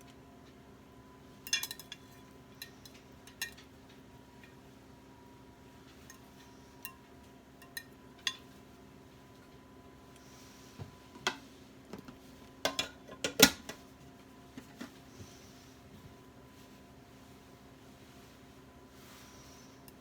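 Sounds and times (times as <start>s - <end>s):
utensils and dishware clinking: 1.5s - 3.7s.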